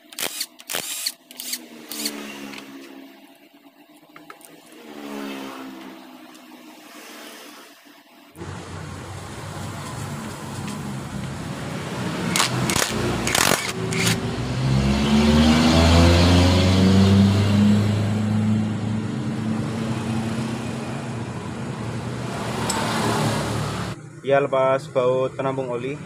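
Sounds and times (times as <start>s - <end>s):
sharp metallic clicks: 0.0s - 2.7s, 12.3s - 14.2s
vehicle engine running: 8.4s - 26.0s.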